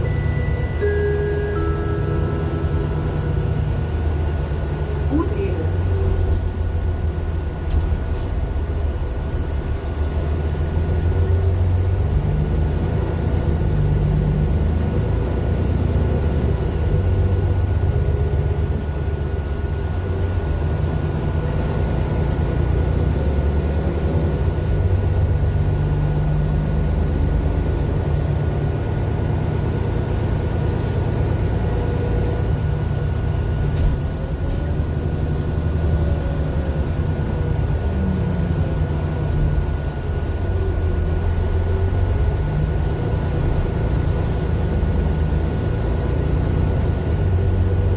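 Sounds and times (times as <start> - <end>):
bus diesel engine drone: 0.0 - 47.9.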